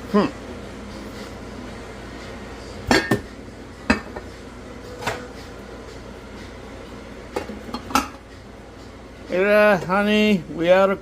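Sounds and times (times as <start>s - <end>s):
kitchenware clinking and knocking: 2.9s - 3.3s, 3.9s - 4.3s, 7.3s - 8.2s.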